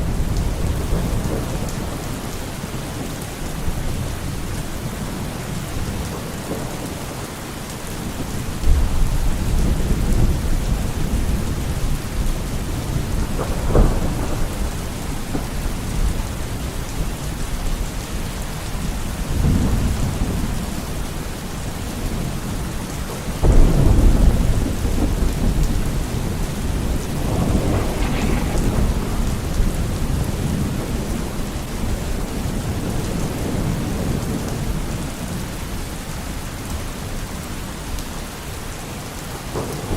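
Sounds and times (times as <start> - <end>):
steady rain: 0.0 - 39.9
rolling thunder: 7.9 - 35.5.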